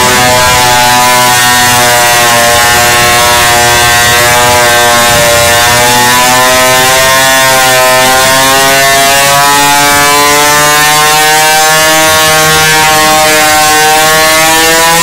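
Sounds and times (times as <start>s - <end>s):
motorcycle engine at high revs: 0.0s - 15.0s.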